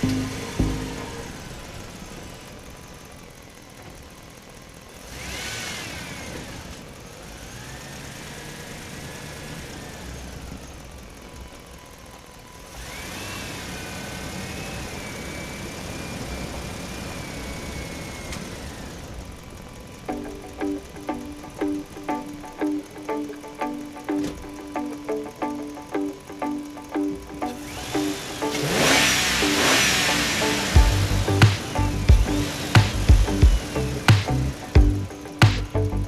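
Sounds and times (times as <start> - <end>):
wavering higher tones: 0.0 - 1.9
engine running: 0.0 - 36.0.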